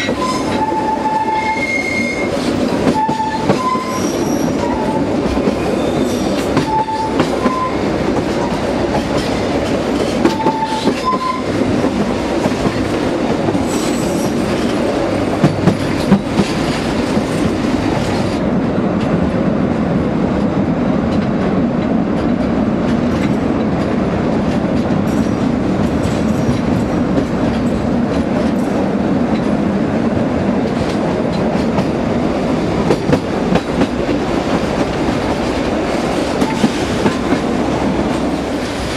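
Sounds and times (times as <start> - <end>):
high wheel squeals: 0.0 - 5.1
train wheels rumbling on rails: 0.0 - 38.9.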